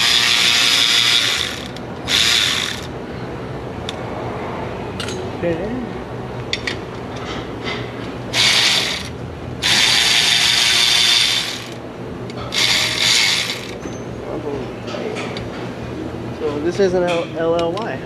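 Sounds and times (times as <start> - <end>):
power ratchet spinning nuts: 0.0 - 3.0, 8.3 - 11.8, 12.5 - 13.8.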